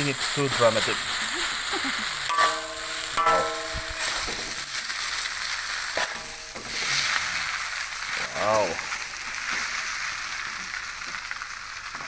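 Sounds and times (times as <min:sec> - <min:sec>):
noodles sizzling in a pan: 0:00.0 - 0:12.0.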